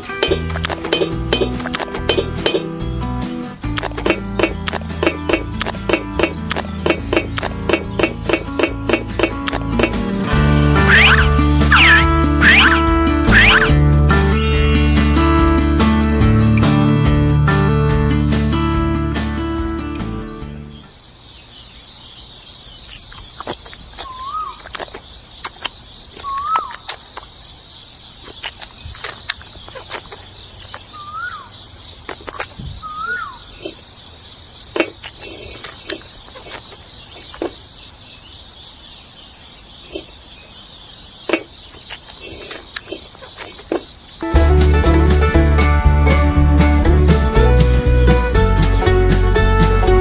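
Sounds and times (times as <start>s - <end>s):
insects droning: 0.0s - 15.6s, 19.7s - 45.2s
short rising-and-falling chirps: 10.8s - 15.5s.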